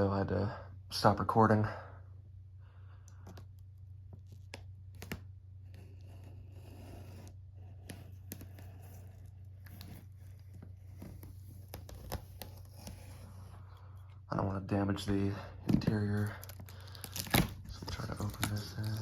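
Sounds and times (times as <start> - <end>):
steady low hum: 0.0 - 19.0
cardboard and tape clicks: 4.2 - 5.3, 7.7 - 13.2, 15.8 - 19.0
cardboard scratching and tearing: 4.9 - 13.5, 15.8 - 19.0.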